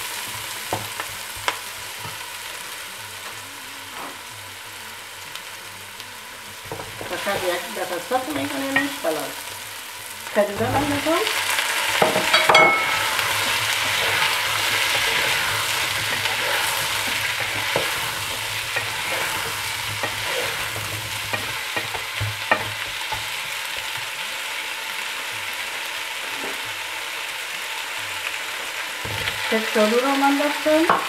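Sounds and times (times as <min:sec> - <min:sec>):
vegetables sizzling in hot oil: 0:00.0 - 0:31.0
wooden spoon scraping a pot: 0:10.6 - 0:23.6.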